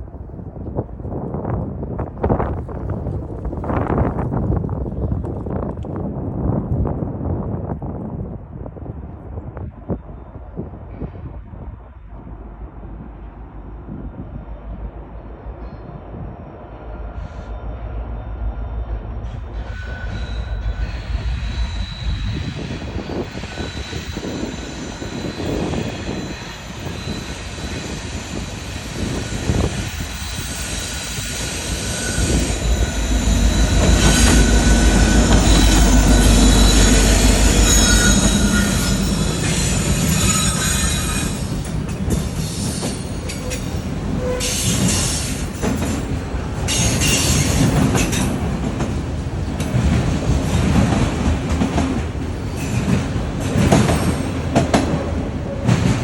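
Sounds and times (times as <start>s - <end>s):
train rumble: 0.0s - 56.0s
train wheels squealing: 15.5s - 48.5s.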